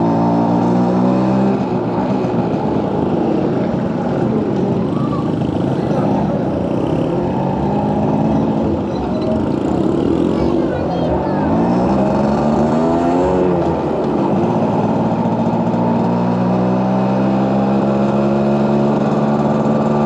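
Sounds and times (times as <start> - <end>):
two-stroke motorcycle engine revving: 0.0 - 20.0.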